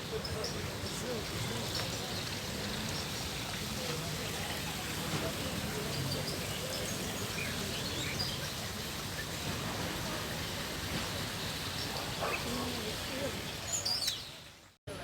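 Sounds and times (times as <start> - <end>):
bird chirps: 13.5 - 14.4.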